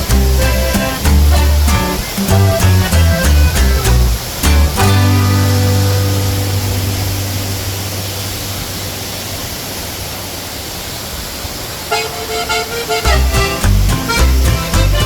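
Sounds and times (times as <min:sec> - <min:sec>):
background music: 0:00.0 - 0:07.9, 0:11.9 - 0:15.0
waterfall rushing: 0:00.0 - 0:15.0.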